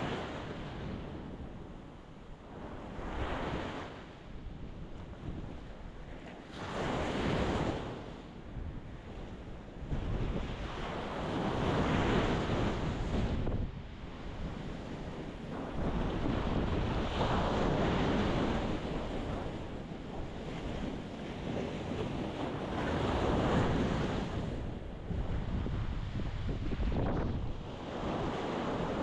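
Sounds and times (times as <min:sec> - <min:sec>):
ocean waves breaking: 0:09.8 - 0:29.0.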